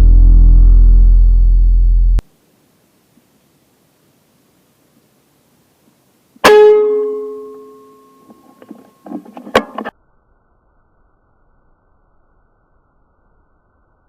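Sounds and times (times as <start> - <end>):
guitar chord and plucked notes: 6.4 - 9.8.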